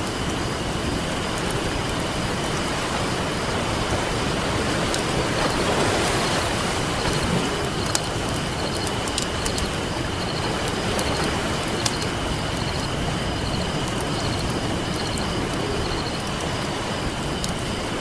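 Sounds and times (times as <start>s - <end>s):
ocean waves: 0.0s - 18.0s
faint pulsing chirps: 5.5s - 16.3s
campfire crackling and popping: 7.0s - 17.7s.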